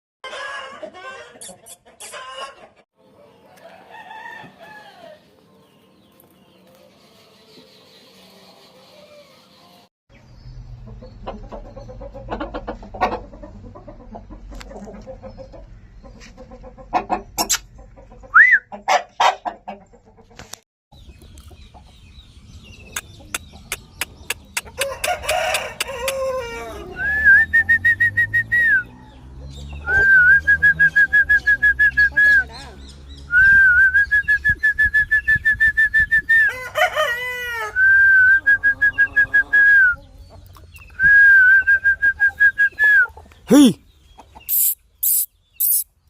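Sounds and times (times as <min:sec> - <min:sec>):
rooster crowing: 0:00.2 - 0:01.3, 0:03.5 - 0:05.3, 0:24.8 - 0:27.6, 0:36.4 - 0:39.9
chickens clucking: 0:00.2 - 0:09.8, 0:10.8 - 0:33.2, 0:34.3 - 0:46.0.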